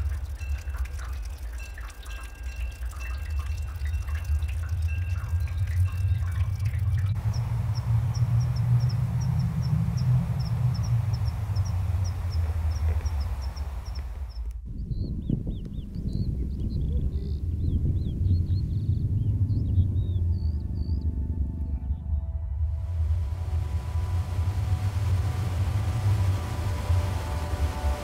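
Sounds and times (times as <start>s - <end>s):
birds calling: 0.0s - 14.5s
steady low rumble: 0.0s - 28.0s.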